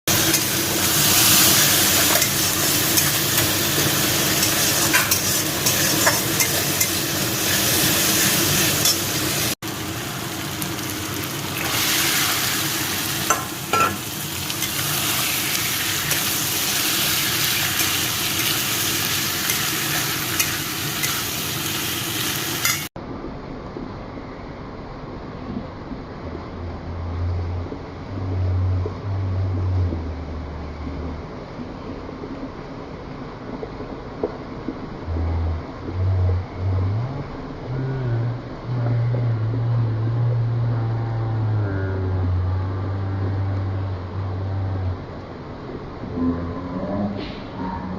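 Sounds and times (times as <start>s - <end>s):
food sizzling in a pan: 0.1s - 22.9s.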